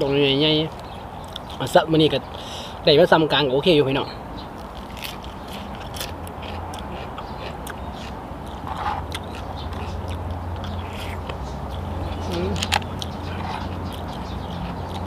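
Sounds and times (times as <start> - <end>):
person chewing crunchy food: 4.5 - 15.0.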